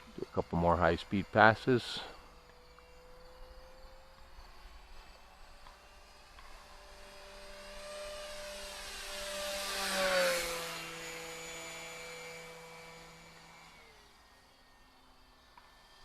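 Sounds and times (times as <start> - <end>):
model plane motor whine flying past: 0.0 - 16.0.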